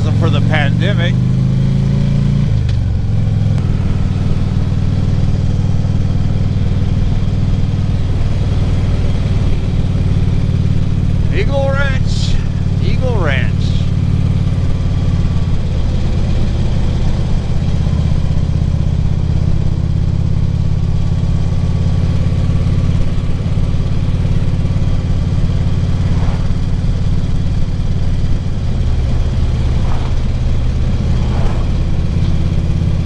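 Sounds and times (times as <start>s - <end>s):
motorcycle engine cruising: 0.0s - 33.0s
road and wind noise: 0.0s - 33.0s.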